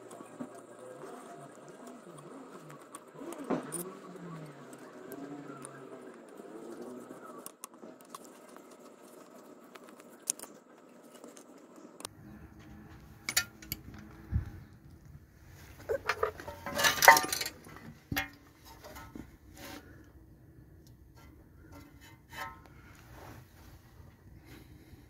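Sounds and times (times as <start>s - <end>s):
metallic clatter: 12.6s - 14.1s, 15.8s - 19.8s
metal tools clinking: 13.2s - 13.9s, 15.8s - 19.2s.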